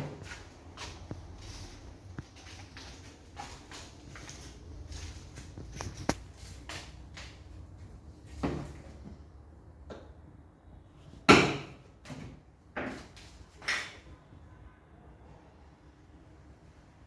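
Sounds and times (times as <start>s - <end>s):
workshop knocks and clanks: 0.0s - 1.4s, 8.2s - 9.3s, 11.2s - 14.1s.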